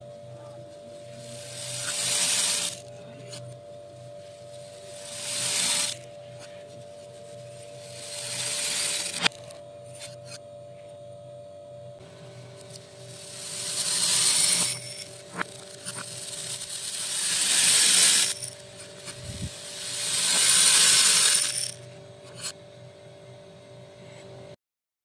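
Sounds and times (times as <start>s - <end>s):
small beads pouring: 1.2s - 2.8s, 4.7s - 6.0s, 7.8s - 9.3s, 13.0s - 21.8s.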